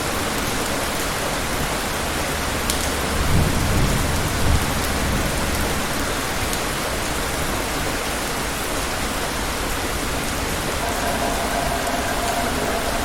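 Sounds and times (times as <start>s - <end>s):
heavy rainfall: 0.0s - 13.0s
faint steady hum: 10.8s - 13.0s
low thunder rumble: 10.8s - 13.0s.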